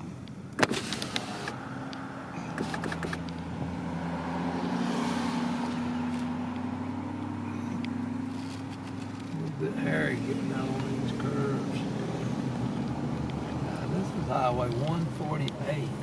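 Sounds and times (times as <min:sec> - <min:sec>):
car engine and tyre noise: 0:00.0 - 0:16.0
sharp click: 0:02.5 - 0:03.4.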